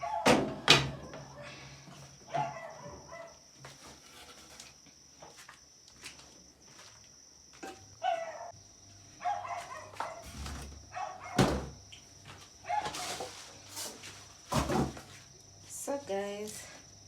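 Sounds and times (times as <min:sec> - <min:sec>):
knocks scrapes and rustles: 0:03.6 - 0:05.5, 0:10.0 - 0:10.8, 0:12.3 - 0:15.3.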